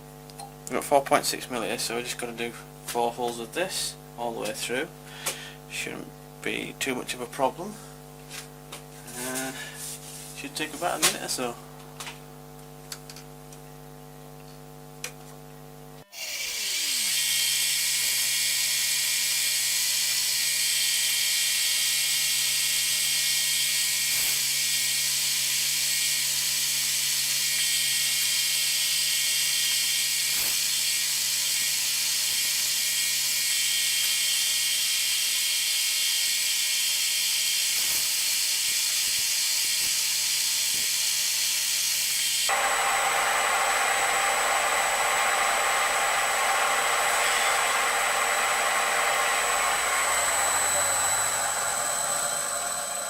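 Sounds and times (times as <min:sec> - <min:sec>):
milling machine running: 0:42.2 - 0:53.0.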